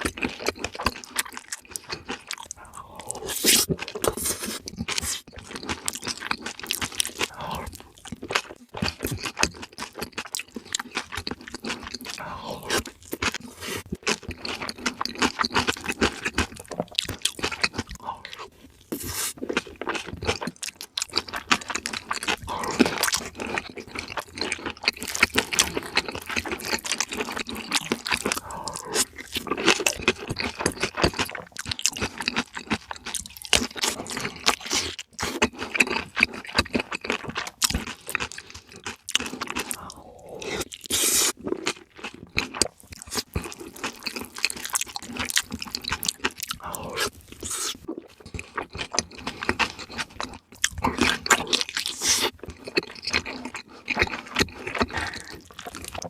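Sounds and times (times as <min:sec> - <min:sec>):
wet chewing and crunching: 0:00.0 - 0:56.0.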